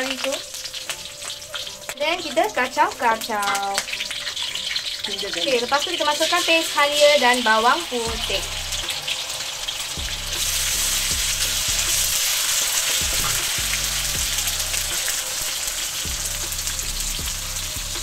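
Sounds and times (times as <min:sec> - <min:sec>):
paste sizzling in hot oil: 0:00.0 - 0:18.0.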